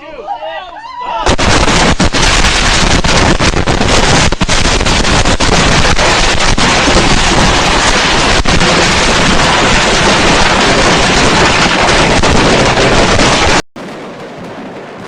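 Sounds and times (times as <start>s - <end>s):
fireworks barrage: 1.2s - 14.9s
sharp firework cracks: 1.3s - 14.6s.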